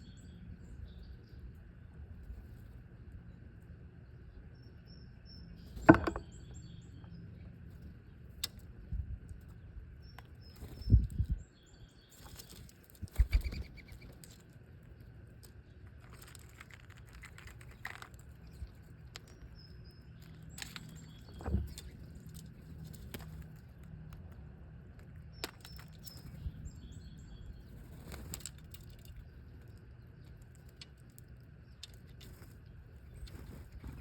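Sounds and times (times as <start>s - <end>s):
small birds chirping: 0.0s - 34.0s
sharp knocks: 5.9s - 6.2s.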